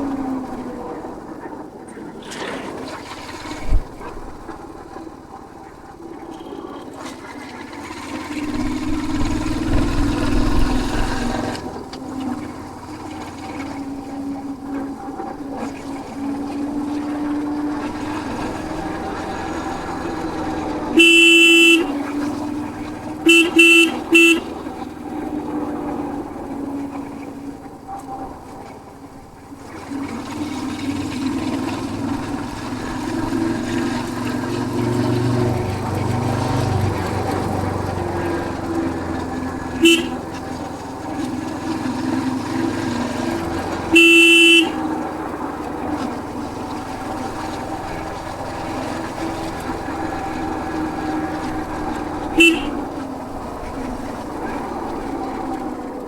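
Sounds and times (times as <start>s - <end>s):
motorcycle engine drone: 0.0s - 56.0s
motorcycle horn beeping: 19.4s - 22.4s, 23.0s - 24.9s, 39.4s - 40.4s, 43.8s - 45.2s, 52.3s - 53.0s.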